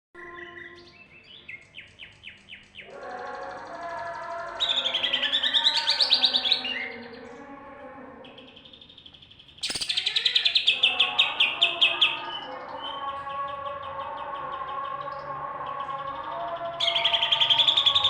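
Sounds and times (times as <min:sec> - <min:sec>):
bird singing with fast trills: 0:00.2 - 0:03.6, 0:04.5 - 0:07.2, 0:08.2 - 0:15.0, 0:16.8 - 0:18.0.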